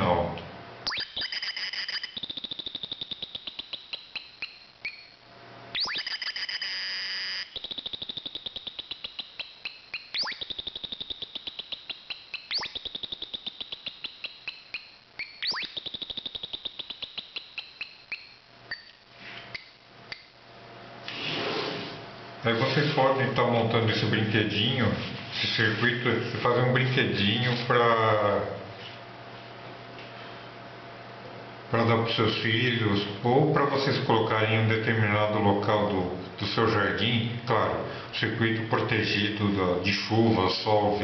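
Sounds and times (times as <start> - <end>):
electronic bird chirps: 0.8 - 20.3
sharp rising electronic sweep: 0.9 - 18.4.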